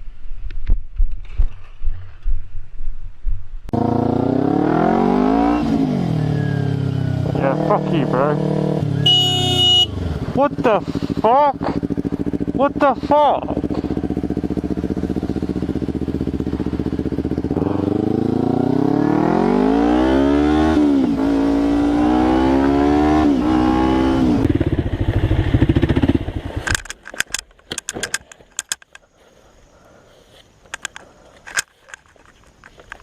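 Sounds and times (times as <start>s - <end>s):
motorcycle engine accelerating: 3.7s - 26.9s.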